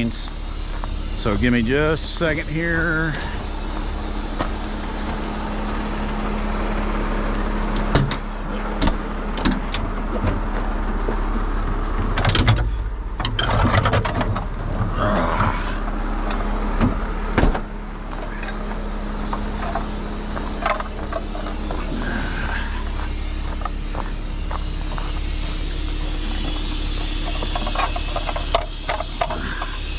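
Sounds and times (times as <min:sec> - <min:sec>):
truck diesel engine idling: 0:00.0 - 0:12.2, 0:15.8 - 0:29.9
rigging knocks and clanks: 0:07.6 - 0:08.2, 0:12.0 - 0:14.9, 0:16.2 - 0:22.0, 0:26.4 - 0:29.8.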